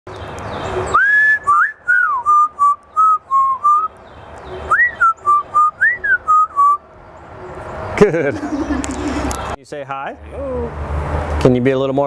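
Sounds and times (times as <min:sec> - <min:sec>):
parrot whistling a tune: 0:01.0 - 0:03.9, 0:04.7 - 0:06.8.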